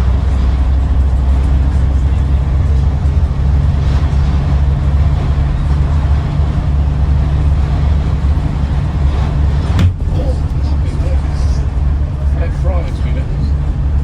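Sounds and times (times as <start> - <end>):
bus engine drone: 0.0 - 14.0
road noise: 0.0 - 14.0.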